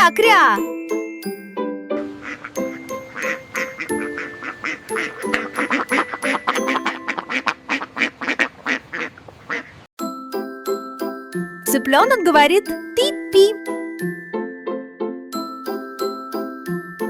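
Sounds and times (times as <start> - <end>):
light children's music: 0.0 - 8.4, 10.0 - 17.0
duck quacking: 2.2 - 9.9.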